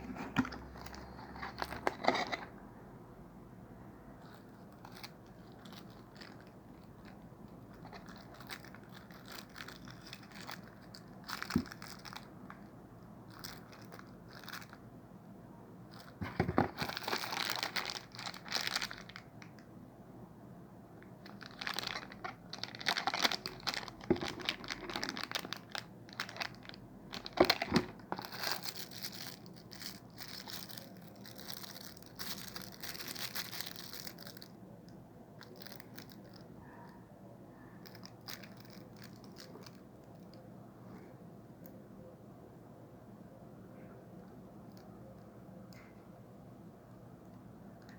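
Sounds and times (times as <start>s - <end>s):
plastic wrap crinkling: 4.2s - 14.8s, 15.9s - 19.6s, 21.0s - 34.6s, 35.4s - 36.4s, 37.8s - 40.3s.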